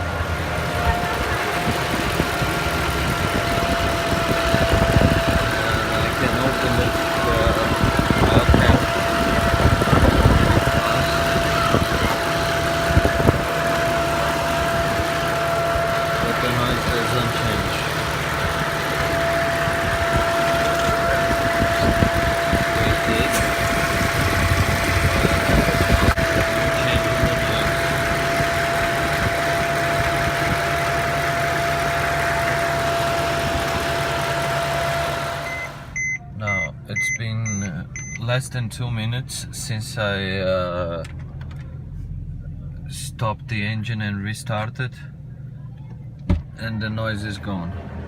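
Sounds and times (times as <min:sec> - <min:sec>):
steady high whine: 0:00.0 - 0:36.7
car engine idling: 0:00.0 - 0:48.0.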